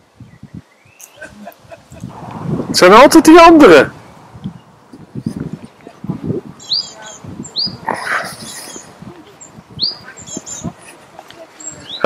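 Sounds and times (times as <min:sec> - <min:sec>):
bird calling high upswept note: 0:06.6 - 0:07.8.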